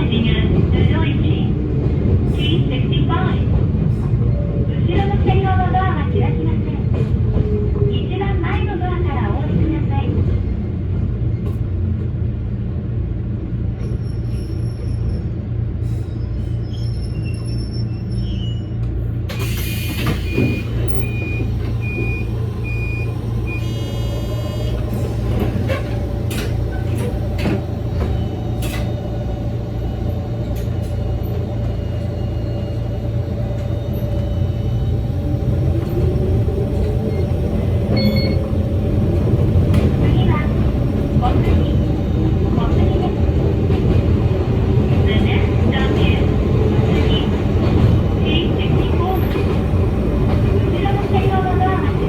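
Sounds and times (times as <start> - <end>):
train wheels and motors rumbling: 0.0 - 52.0
train motor whine: 19.3 - 42.6.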